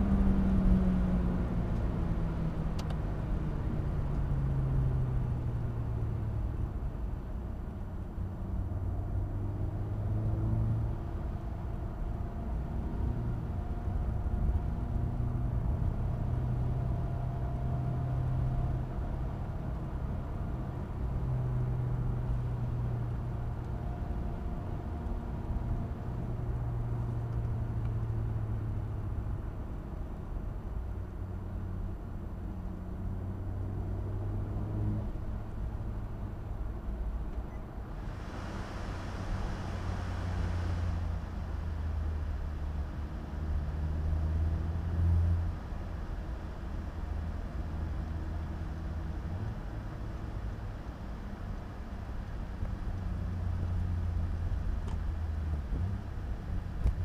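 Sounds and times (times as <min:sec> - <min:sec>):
low rumble: 0:37.8 - 0:50.4.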